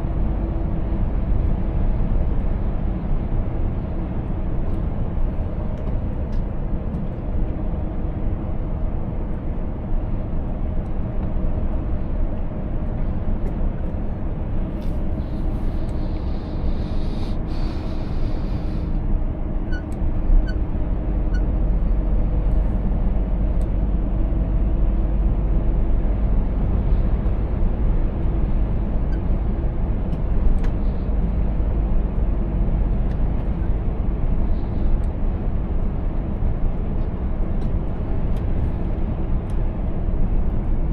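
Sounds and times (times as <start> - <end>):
road rumble: 0.0 - 40.9
truck diesel engine running: 11.8 - 40.9.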